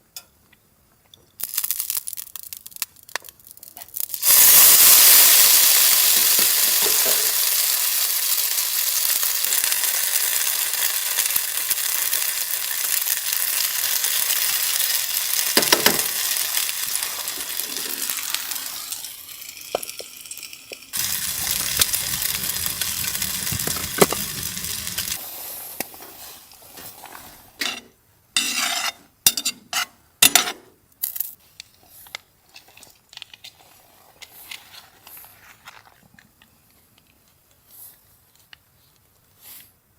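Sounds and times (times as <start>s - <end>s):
food sizzling in a frying pan: 4.0s - 25.4s.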